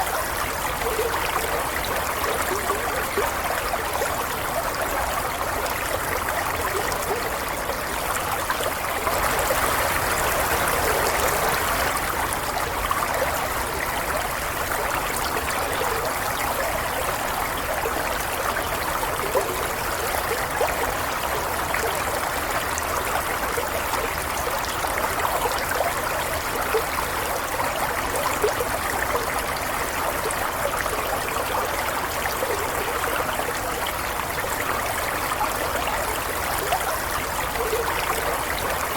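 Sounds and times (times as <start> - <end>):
stream water trickling: 0.0 - 38.9.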